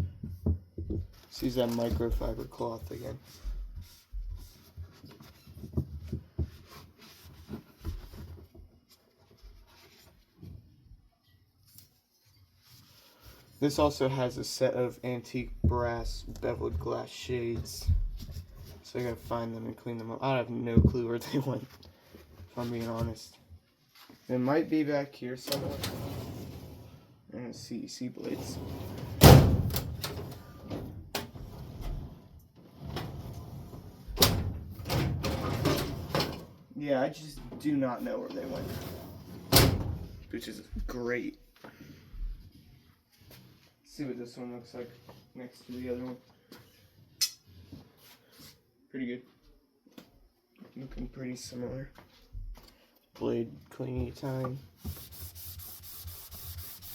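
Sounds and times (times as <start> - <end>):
cloth wiping and rubbing: 3.0 - 5.5, 6.5 - 7.6, 54.2 - 56.9.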